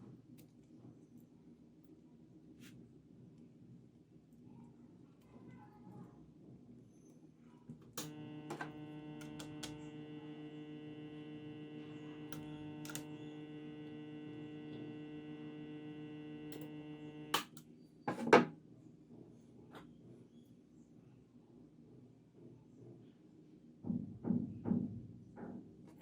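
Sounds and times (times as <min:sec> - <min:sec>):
sharp clicks: 0:08.0 - 0:17.6
transformer humming: 0:08.0 - 0:17.6.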